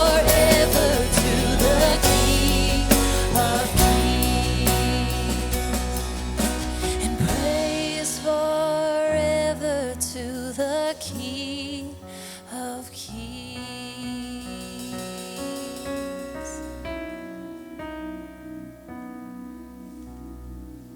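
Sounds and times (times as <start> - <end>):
guitar chords: 0.0 - 9.0
keyboard chords: 0.0 - 10.0, 14.7 - 20.9
bass: 0.0 - 12.0.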